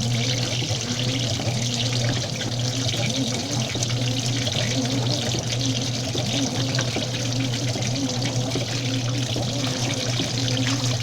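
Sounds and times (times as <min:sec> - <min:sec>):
washing machine motor hum: 0:00.0 - 0:11.0
water splashing in washing machine: 0:00.0 - 0:11.0.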